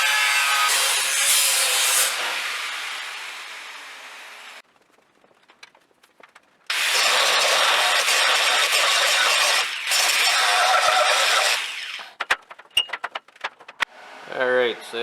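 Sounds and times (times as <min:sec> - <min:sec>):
welding arc crackling: 0:05.4 - 0:13.9
power tool winding down: 0:06.7 - 0:12.0.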